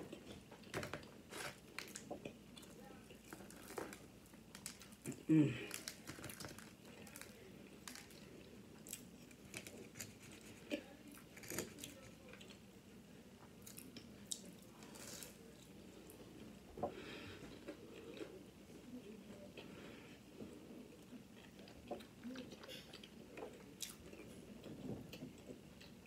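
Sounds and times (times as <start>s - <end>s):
chewing crunchy food: 0.0s - 12.7s, 20.9s - 26.0s.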